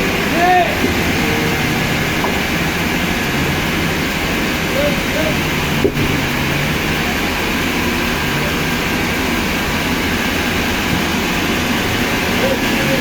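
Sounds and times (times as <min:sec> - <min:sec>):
loud machine noise: 0:00.0 - 0:13.0.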